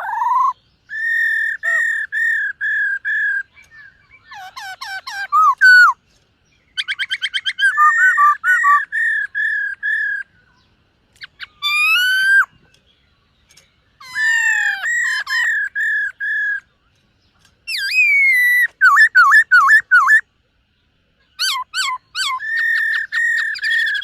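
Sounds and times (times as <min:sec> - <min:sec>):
bird singing whistled phrases: 0:00.0 - 0:06.0, 0:06.8 - 0:10.6, 0:11.2 - 0:12.6, 0:17.7 - 0:20.2.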